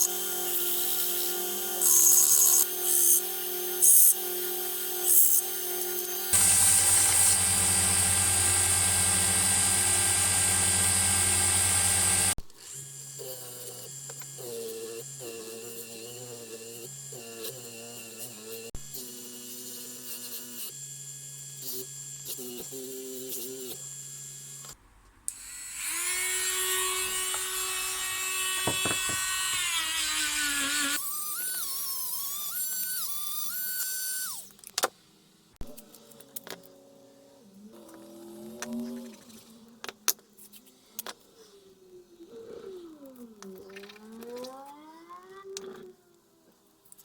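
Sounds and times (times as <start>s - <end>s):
grinder motor hissing on metal: 5.9s - 12.4s
grinder motor whine: 5.9s - 12.9s, 25.6s - 31.6s.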